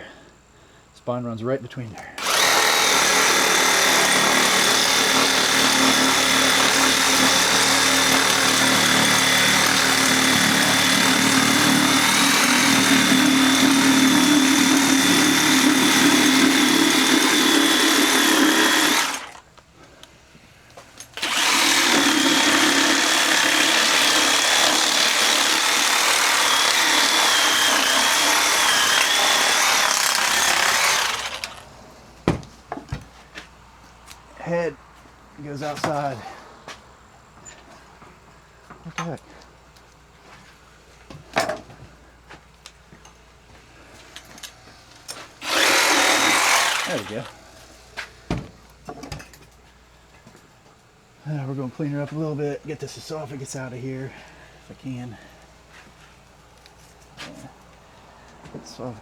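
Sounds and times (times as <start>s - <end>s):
electric saw cutting bone: 2.2s - 19.4s, 21.2s - 31.7s, 45.4s - 47.4s.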